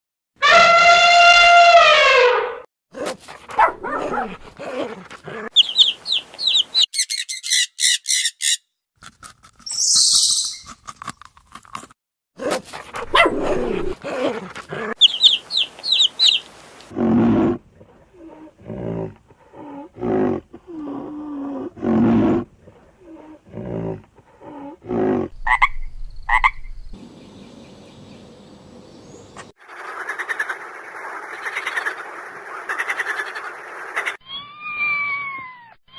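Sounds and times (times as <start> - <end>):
high rapid chirping trills: 5.6 - 8.6, 9.7 - 10.7.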